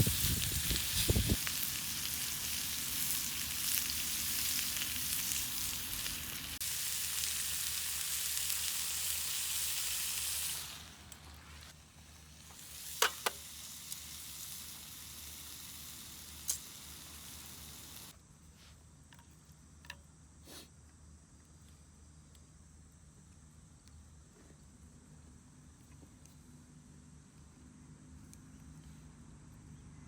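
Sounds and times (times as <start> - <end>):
food sizzling in a skillet: 0.0 - 18.1.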